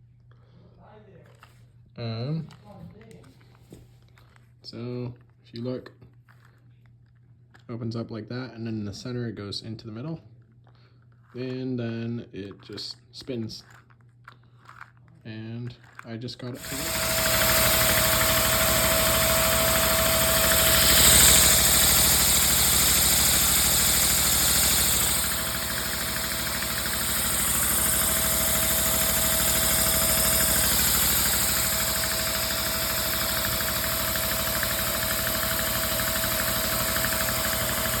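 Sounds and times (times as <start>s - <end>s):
small vacuum engine clattering: 13.6s - 38.0s.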